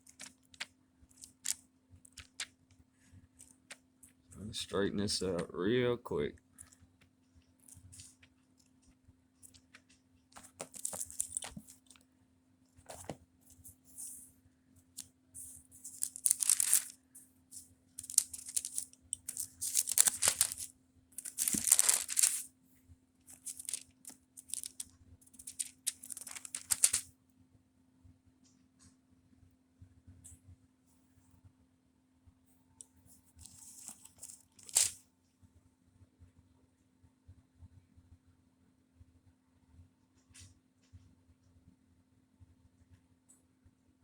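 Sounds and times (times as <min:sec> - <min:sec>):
paper pages flipping: 0:00.0 - 0:02.5, 0:07.7 - 0:08.3, 0:09.5 - 0:12.0, 0:12.8 - 0:14.2, 0:15.4 - 0:17.0, 0:18.0 - 0:22.5, 0:23.3 - 0:27.1, 0:33.4 - 0:35.0.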